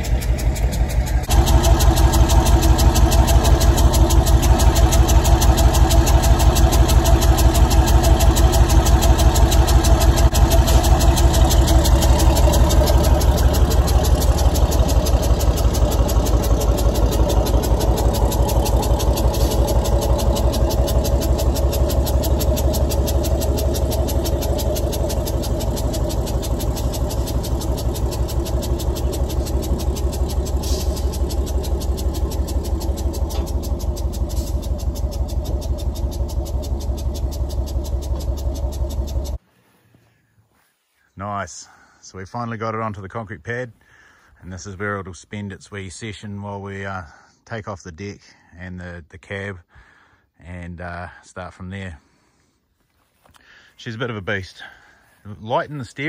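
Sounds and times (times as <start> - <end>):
truck engine running: 0.0 - 39.4.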